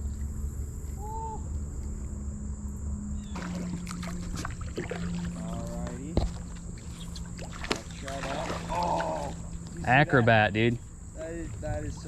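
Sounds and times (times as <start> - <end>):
insect drone: 0.0 - 12.0
steady low rumble: 0.0 - 12.0
water splashing: 3.3 - 10.7.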